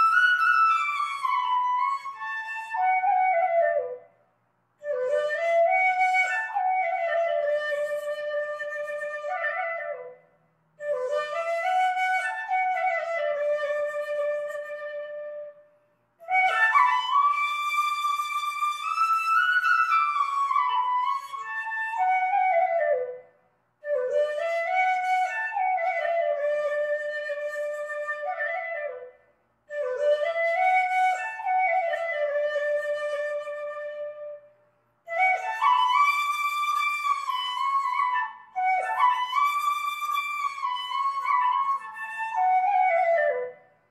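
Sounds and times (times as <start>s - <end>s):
solo wind instrument melody: 35.1s - 43.7s.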